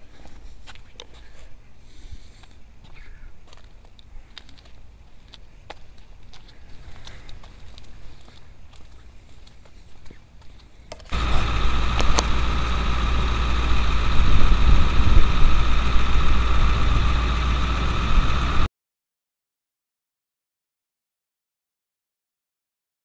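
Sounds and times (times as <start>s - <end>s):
vehicle engine running: 11.1s - 18.7s.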